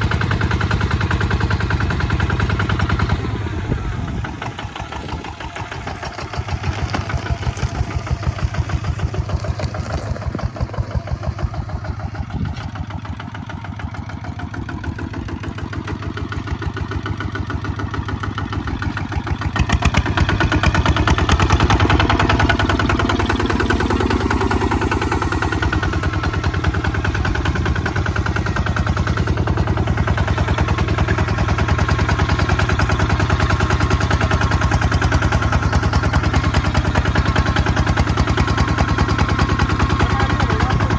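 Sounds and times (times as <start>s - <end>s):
diesel engine chugging: 0.0s - 40.9s.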